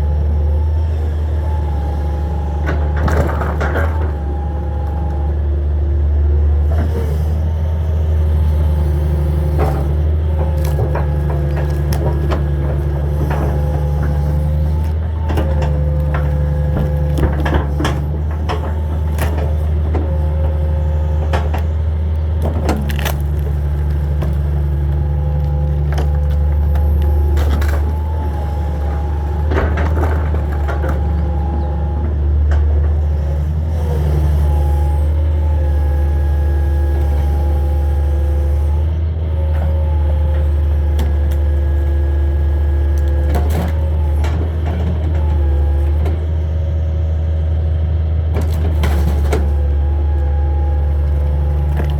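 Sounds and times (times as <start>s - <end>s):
excavator diesel engine: 0.0s - 51.9s
hydraulic whine: 6.4s - 46.5s
wood debris cracking: 10.4s - 31.6s.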